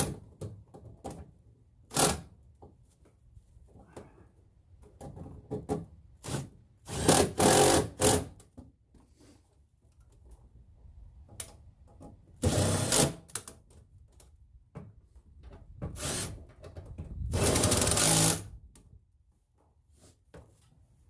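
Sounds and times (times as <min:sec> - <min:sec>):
handheld power tool bursts: 0:17.4 - 0:18.5.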